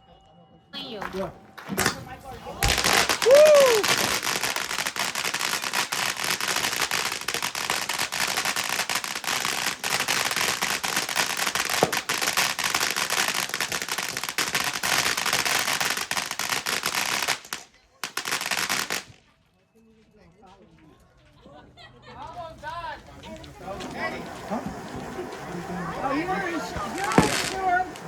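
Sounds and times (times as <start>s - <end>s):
fireworks crackling pops: 1.0s - 19.5s, 22.9s - 28.0s
rising firework whistle: 2.6s - 17.6s, 23.4s - 28.0s.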